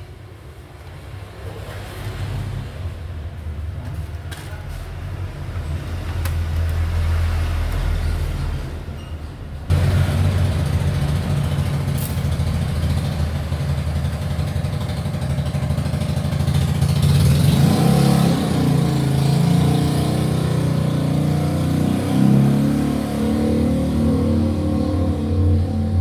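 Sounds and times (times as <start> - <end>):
vehicle engine running: 9.7 - 17.9, 24.3 - 26.0.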